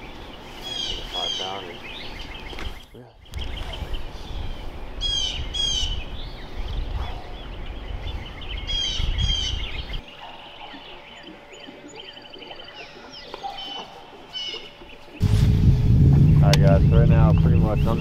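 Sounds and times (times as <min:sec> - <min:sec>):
songbirds singing: 0:00.0 - 0:15.3, 0:16.1 - 0:18.0
low rumble: 0:15.2 - 0:18.0.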